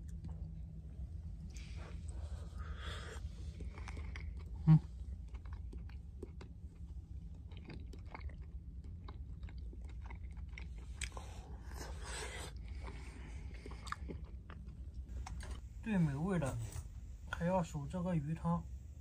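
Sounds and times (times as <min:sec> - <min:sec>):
person chewing with wet clicks: 0:00.0 - 0:02.1, 0:03.3 - 0:15.6
low rumble: 0:00.0 - 0:11.7.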